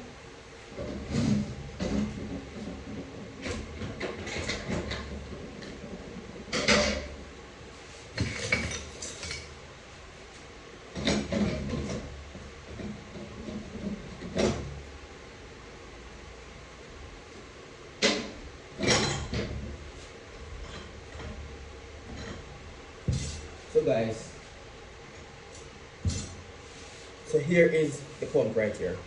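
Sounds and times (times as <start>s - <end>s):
metal clinks knocks and scrapes: 8.2s - 9.5s, 18.0s - 19.7s, 20.5s - 21.4s.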